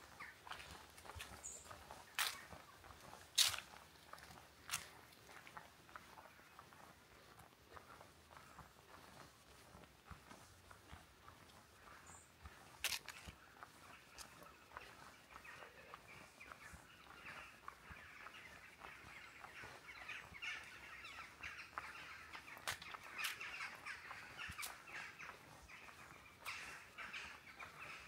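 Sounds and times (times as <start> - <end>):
faint bird calls: 10.9 - 28.0.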